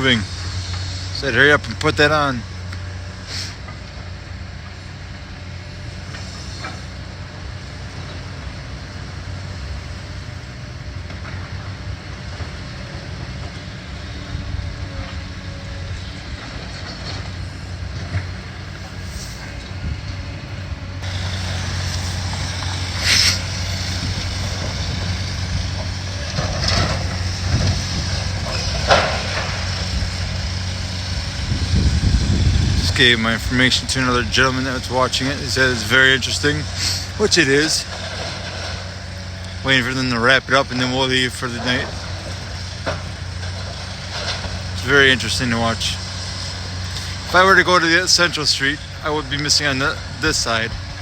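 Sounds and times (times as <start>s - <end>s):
diesel machinery humming: 0.0s - 51.0s
sharp hissing or scraping: 3.2s - 3.7s, 18.9s - 19.6s, 21.0s - 25.1s, 36.7s - 37.3s.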